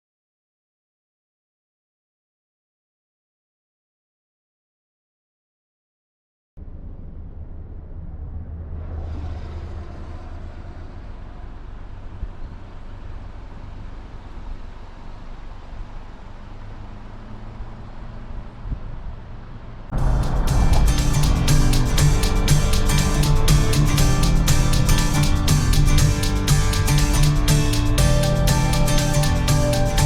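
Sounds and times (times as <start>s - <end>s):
car engine and road noise: 6.6s - 30.0s
music: 20.0s - 30.0s.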